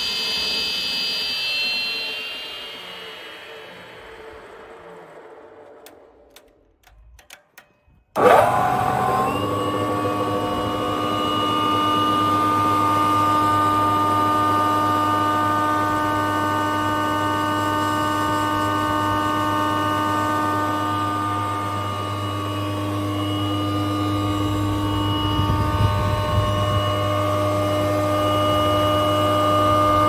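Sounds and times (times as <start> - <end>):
woodworking machine motor hum: 8.2 - 30.0.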